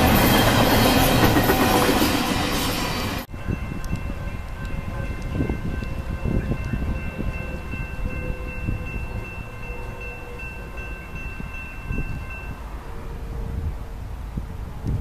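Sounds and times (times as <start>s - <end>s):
train rumbling: 0.0s - 15.0s
high ringing tones: 3.2s - 13.1s
wind on microphone: 3.3s - 15.0s.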